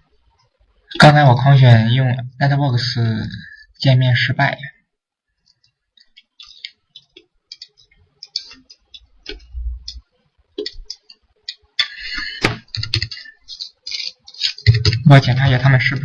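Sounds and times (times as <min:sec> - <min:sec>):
keyboard clicks: 0:12.4 - 0:13.9.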